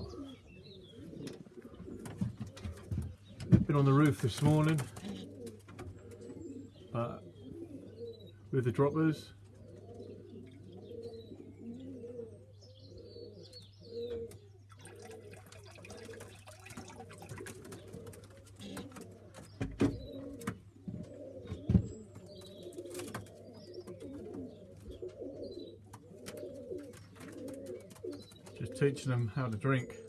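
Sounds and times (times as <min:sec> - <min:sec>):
pigeons cooing: 0:00.0 - 0:30.0
taps and rustles: 0:01.2 - 0:06.0, 0:16.7 - 0:24.5.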